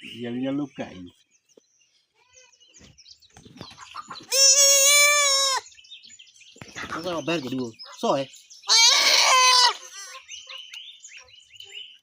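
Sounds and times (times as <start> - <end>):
goat bleating: 4.3 - 5.6, 8.7 - 10.2.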